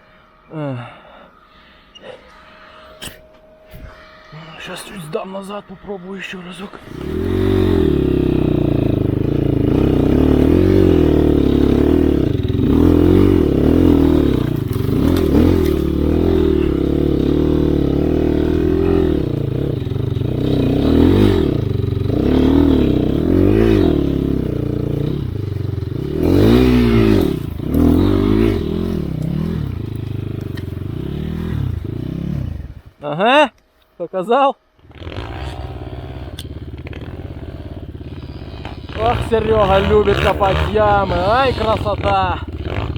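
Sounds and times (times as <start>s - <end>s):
dirt bike engine revving: 6.4s - 33.0s, 34.8s - 42.9s
rear tyre spinning in snow: 6.7s - 32.9s, 34.8s - 42.9s.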